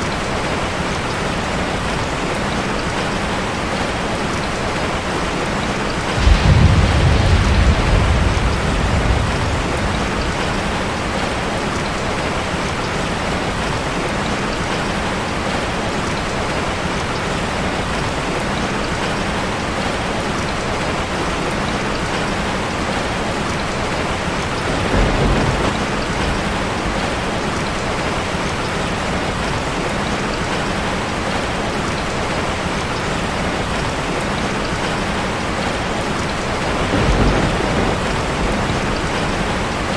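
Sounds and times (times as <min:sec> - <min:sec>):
rain on a metal roof: 0:00.0 - 0:39.9
thunder rumbling: 0:05.9 - 0:12.4, 0:24.0 - 0:28.2, 0:36.2 - 0:39.9.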